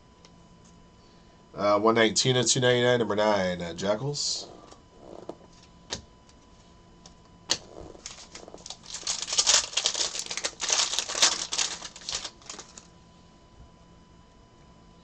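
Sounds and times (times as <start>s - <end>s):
cards clicking and rustling: 7.5s - 12.9s.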